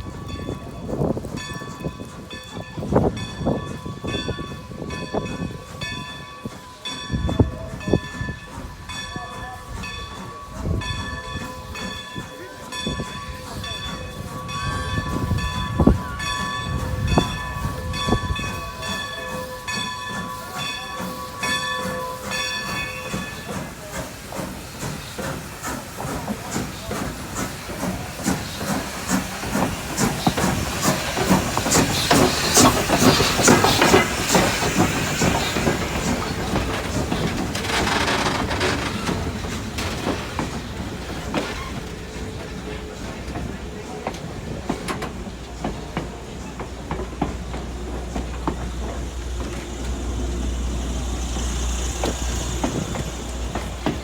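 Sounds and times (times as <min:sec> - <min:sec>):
hissing steam: 0:00.0 - 0:54.0
train wheels clicking and clanking: 0:00.0 - 0:54.0.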